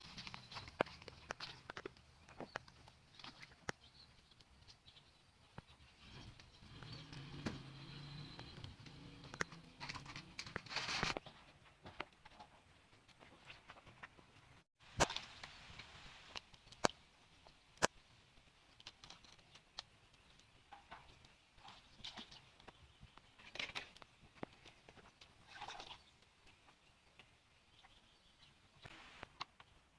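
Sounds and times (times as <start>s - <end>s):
short rustling scrape: 10.6s - 11.2s.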